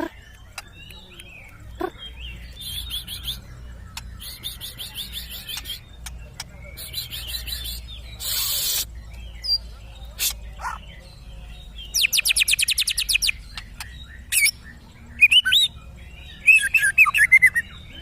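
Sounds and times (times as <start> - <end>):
songbird singing: 0.0 - 18.0
harsh noisy bird call: 6.7 - 10.8.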